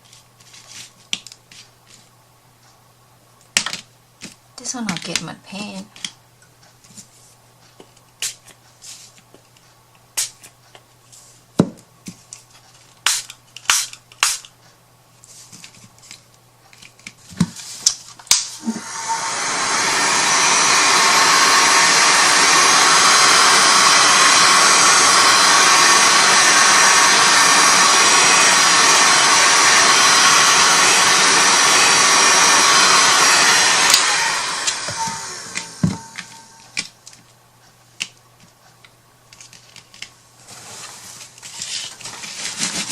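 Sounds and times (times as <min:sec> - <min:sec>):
electric air blower running: 0:18.3 - 0:36.8.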